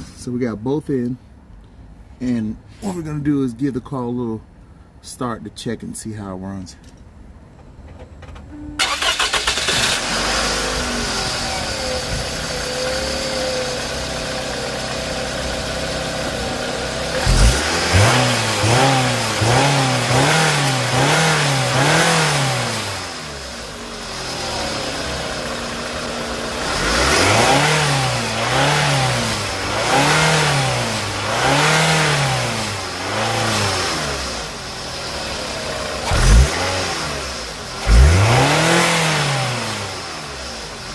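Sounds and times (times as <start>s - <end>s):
car engine starting and idling: 6.6s - 40.9s
engine revving in throttle blips: 8.6s - 40.9s.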